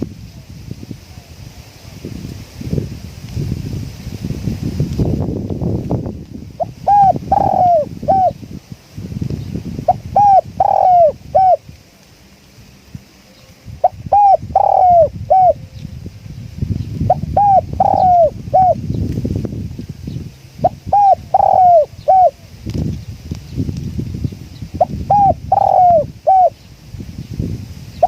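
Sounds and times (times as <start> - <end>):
wind rumble on microphone: 0.0 - 28.0
dove cooing: 6.6 - 8.4, 9.9 - 11.6, 13.8 - 15.8, 17.1 - 18.8, 20.6 - 22.5, 24.8 - 26.6.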